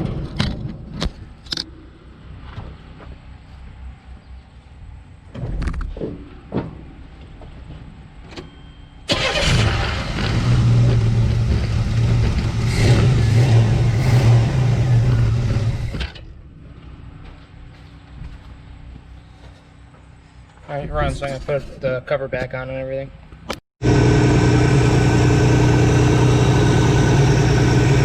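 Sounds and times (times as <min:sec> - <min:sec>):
truck engine starting and running: 0:08.3 - 0:17.7, 0:23.8 - 0:28.0.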